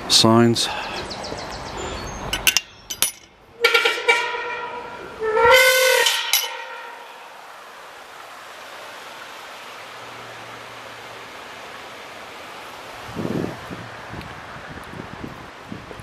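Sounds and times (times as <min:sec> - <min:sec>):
train horn blasts: 0:03.6 - 0:07.2
wind noise on microphone: 0:13.0 - 0:16.0.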